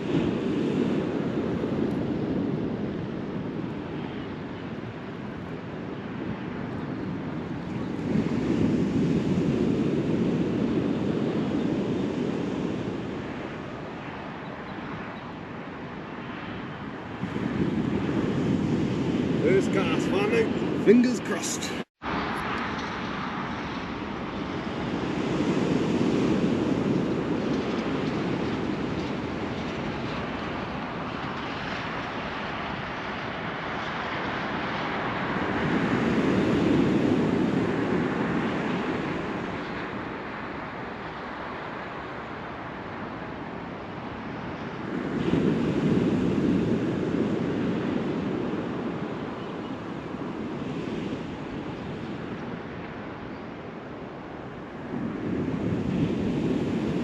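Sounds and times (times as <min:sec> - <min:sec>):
surf breaking on beach: 0:17.1 - 0:21.9.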